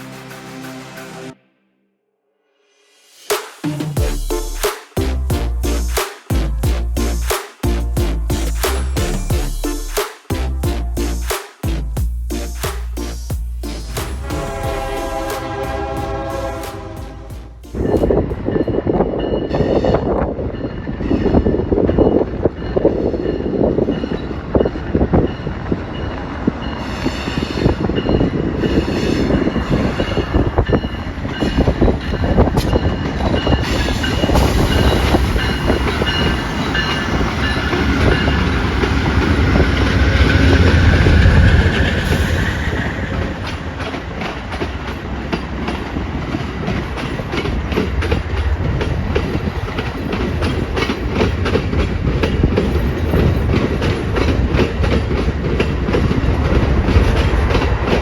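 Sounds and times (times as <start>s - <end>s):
diesel locomotive rumble: 4.0s - 19.2s, 28.5s - 58.0s
train squeal: 14.4s - 58.0s
train wheels clicking over rail joints: 26.6s - 58.0s.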